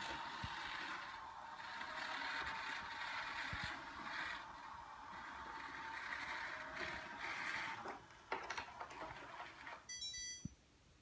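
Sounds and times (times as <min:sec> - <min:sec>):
robot vacuum whirring: 0:00.0 - 0:09.9
short electronic beep: 0:09.9 - 0:10.5.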